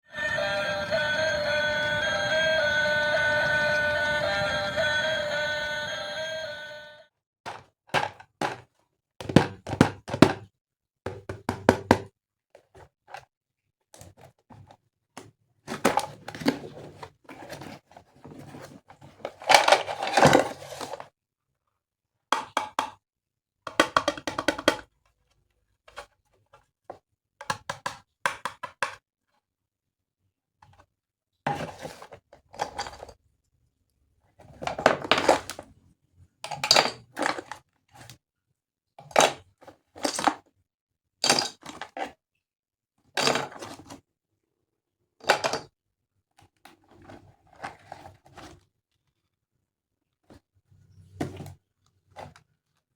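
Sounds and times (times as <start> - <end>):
plastic toy parts clattering: 19.3 - 21.0, 31.6 - 33.2, 36.5 - 37.6.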